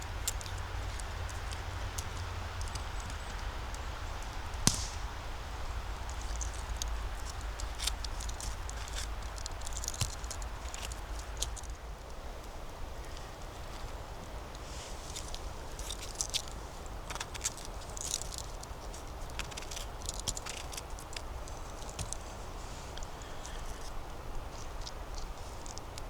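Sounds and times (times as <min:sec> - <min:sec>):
twig snapping: 0:04.6 - 0:05.3, 0:06.1 - 0:11.7, 0:17.1 - 0:21.3.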